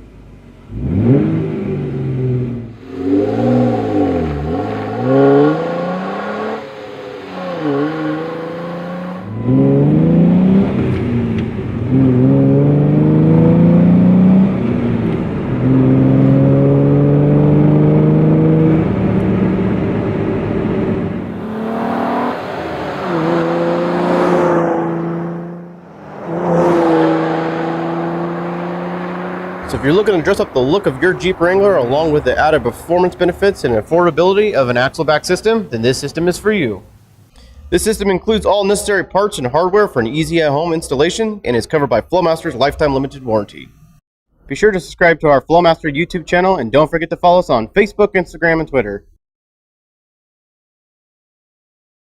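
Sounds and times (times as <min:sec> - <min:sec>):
car engine revving and accelerating: 0:00.6 - 0:37.8.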